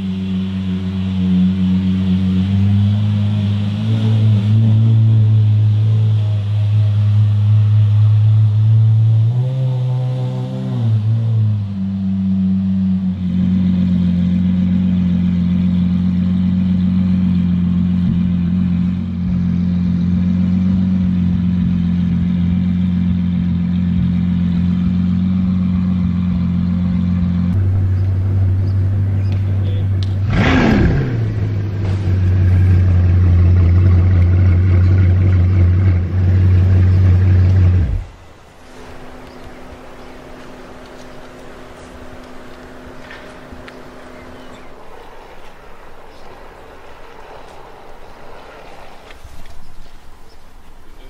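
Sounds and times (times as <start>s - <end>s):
sports car engine idling: 11.0s - 51.0s
deeper car engine idling: 14.2s - 48.2s.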